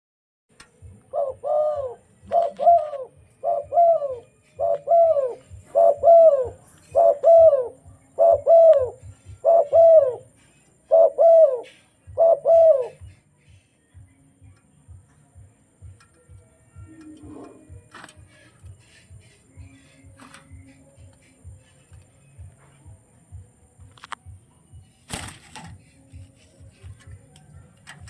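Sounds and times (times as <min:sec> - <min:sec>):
dove cooing: 0:00.8 - 0:13.4, 0:15.4 - 0:23.5.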